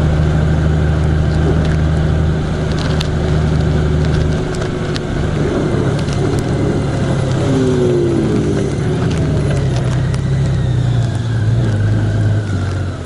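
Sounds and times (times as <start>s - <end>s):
vehicle engine driving on road: 0.0s - 13.0s.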